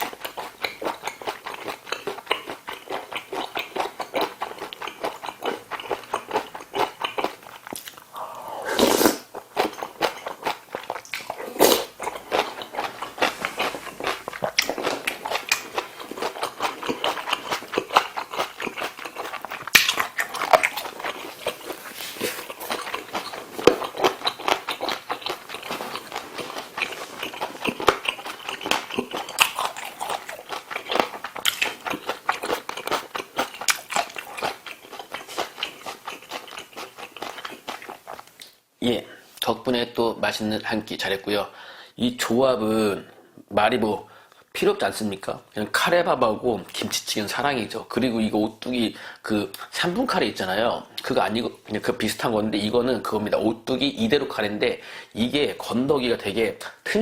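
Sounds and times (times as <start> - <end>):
wet chewing and mouth smacking: 0.0 - 8.1, 9.0 - 38.6.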